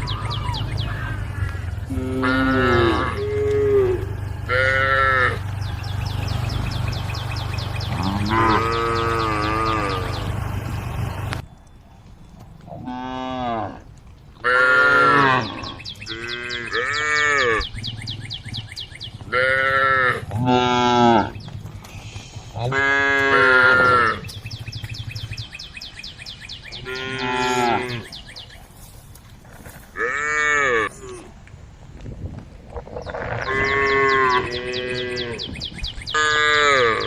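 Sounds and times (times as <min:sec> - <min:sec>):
cows mooing: 0:00.0 - 0:11.4, 0:12.7 - 0:17.7, 0:19.2 - 0:21.4, 0:22.5 - 0:24.6, 0:26.8 - 0:28.2, 0:30.0 - 0:31.3, 0:32.9 - 0:37.0.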